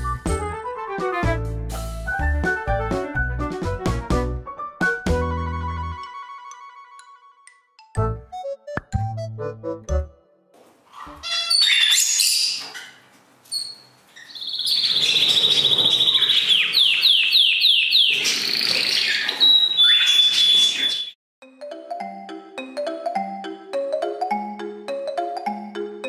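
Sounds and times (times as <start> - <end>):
budgie chirping and warbling: 10.9 - 12.8, 13.6 - 21.1.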